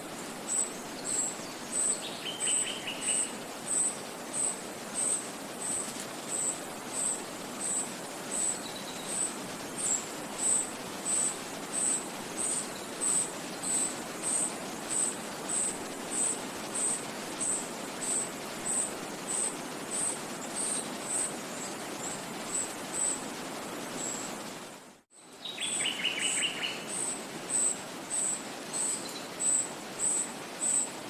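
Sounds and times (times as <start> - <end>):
stream flowing: 0.0 - 24.7.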